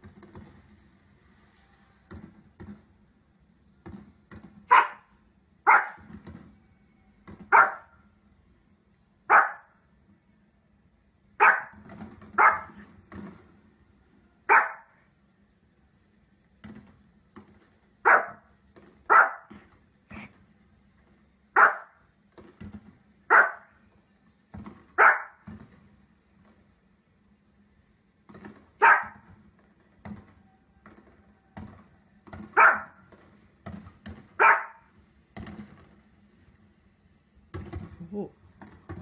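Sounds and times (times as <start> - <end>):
small dog barking: 4.7 - 6.1, 7.5 - 8.0, 9.3 - 9.8, 11.4 - 11.8, 12.4 - 12.8, 14.5 - 15.0, 18.0 - 18.5, 19.1 - 19.6, 21.6 - 22.0, 23.3 - 23.7, 25.0 - 25.4, 28.8 - 29.2, 32.6 - 33.0, 34.4 - 34.9.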